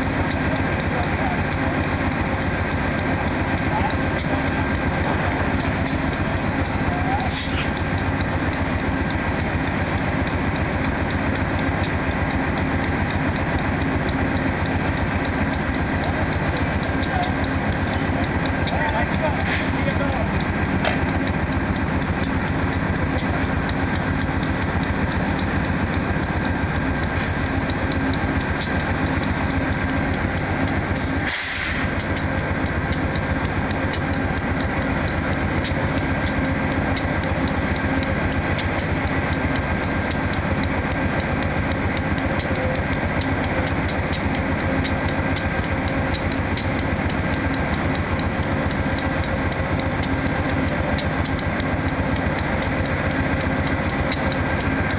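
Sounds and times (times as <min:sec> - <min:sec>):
diesel locomotive idling: 0:00.0 - 0:54.9
short hiss: 0:31.0 - 0:31.9.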